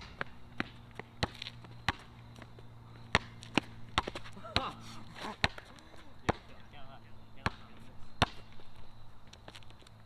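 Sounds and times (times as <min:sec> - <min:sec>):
basketball bouncing on hard court: 0:00.0 - 0:06.6, 0:07.4 - 0:08.5.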